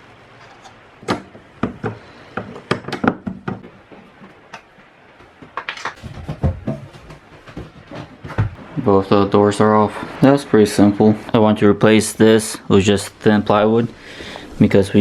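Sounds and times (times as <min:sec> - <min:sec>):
fridge doors knocking and clicking: 0:01.0 - 0:03.8.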